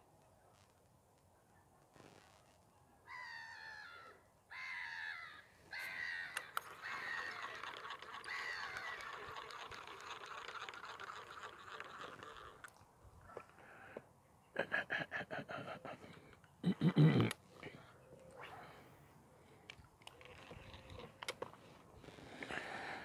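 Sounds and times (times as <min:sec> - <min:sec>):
birds calling: 0:03.1 - 0:10.0.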